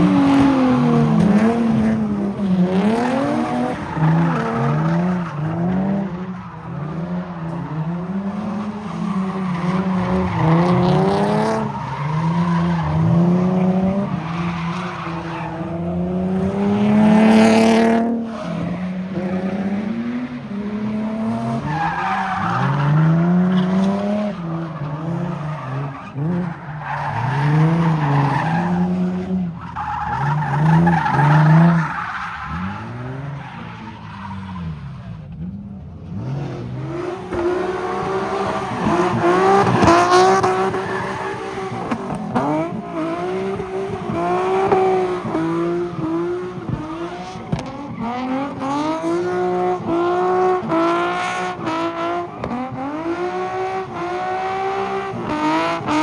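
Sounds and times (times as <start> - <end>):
tires squealing: 0.0 - 56.0.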